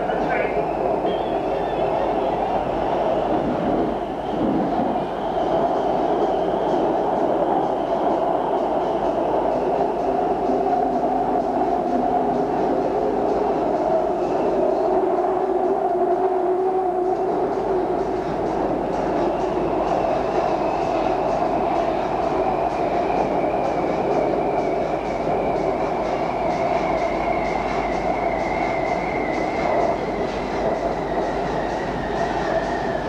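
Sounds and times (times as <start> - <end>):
high train whine: 0.0 - 33.0
train wheels rumbling on rail: 0.0 - 33.0.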